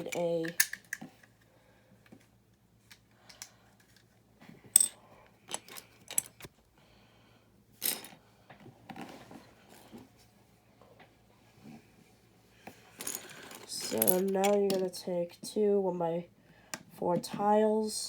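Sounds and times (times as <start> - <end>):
plastic bricks clicking and clattering: 0.0 - 1.3.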